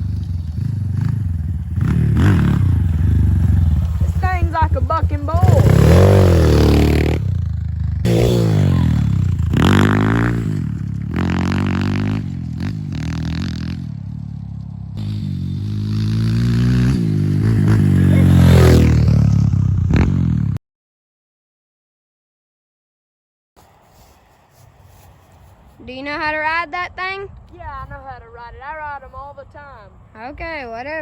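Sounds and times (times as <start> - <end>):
dirt bike engine revving: 0.0 - 20.6.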